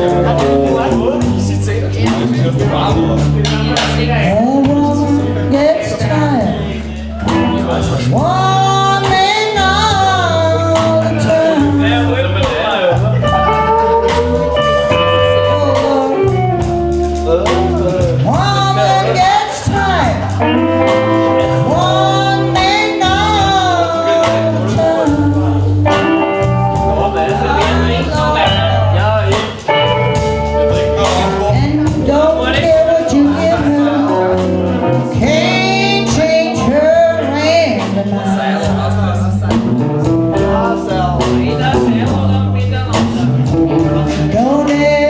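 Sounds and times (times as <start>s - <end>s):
drum hits: 0.0s - 5.2s
bass line: 0.0s - 45.0s
guitar: 0.0s - 45.0s
live band playing: 0.0s - 45.0s
sliding guitar notes: 0.0s - 45.0s.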